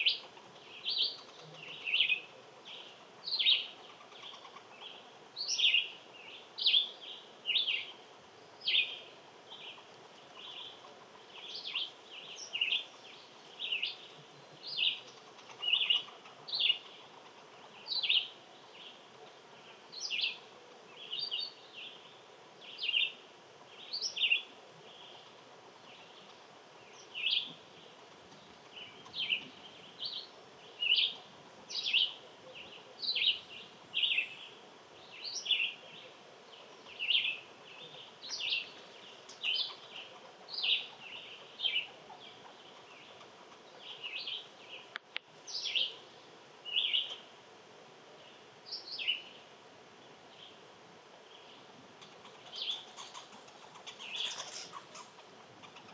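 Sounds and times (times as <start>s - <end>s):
songbird calling: 0.0s - 47.3s, 48.2s - 50.6s, 51.2s - 55.9s
faint background hiss: 0.0s - 55.9s.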